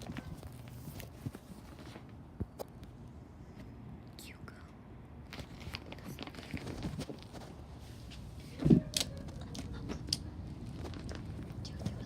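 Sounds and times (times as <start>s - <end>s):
small clicks and crackles: 5.3s - 7.4s, 8.9s - 12.0s.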